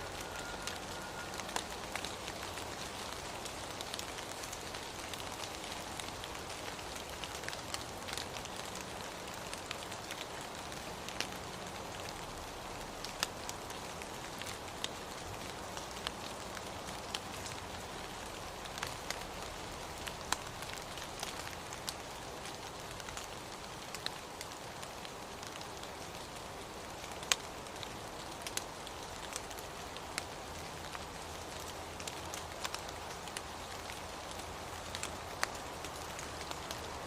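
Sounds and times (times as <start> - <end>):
steady rain hiss: 0.0 - 37.0
raindrops tapping: 26.9 - 37.0.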